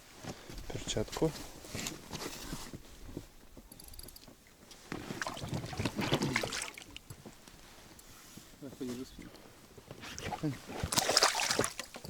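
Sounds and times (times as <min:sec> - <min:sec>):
rustling of handling: 0:00.1 - 0:03.6
water splashing against boat: 0:04.8 - 0:07.1, 0:09.1 - 0:12.0.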